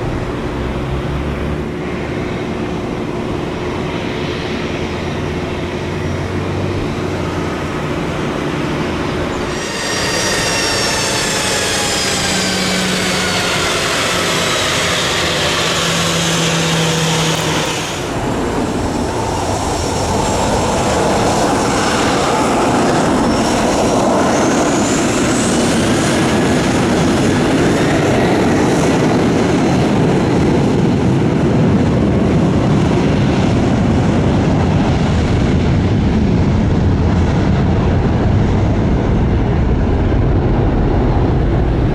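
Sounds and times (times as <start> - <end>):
jet engine roar: 0.0 - 41.9
jet passing with whine: 0.0 - 41.9.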